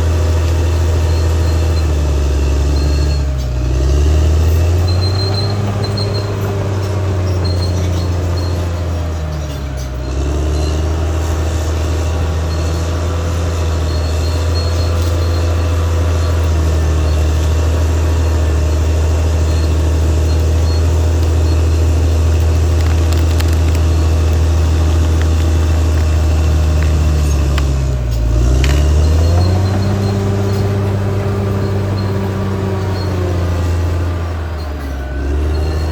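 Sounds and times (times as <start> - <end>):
bulldozer diesel engine under load: 0.0 - 35.9.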